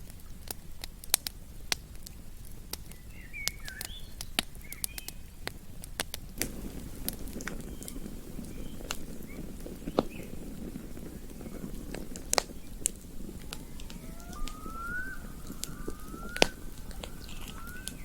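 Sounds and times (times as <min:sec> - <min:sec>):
campfire crackling and popping: 0:00.0 - 0:18.0
bird chirping: 0:11.0 - 0:18.0.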